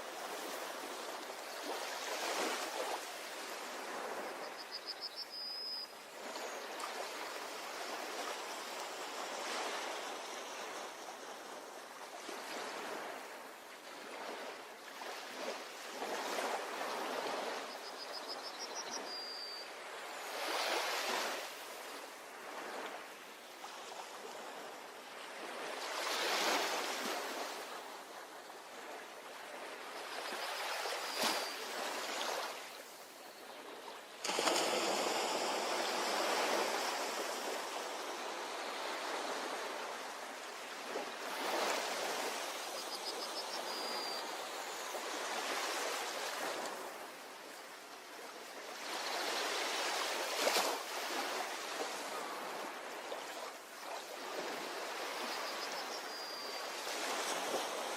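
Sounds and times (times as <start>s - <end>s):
ocean waves washing onto beach: 0.0s - 4.5s, 19.8s - 56.0s.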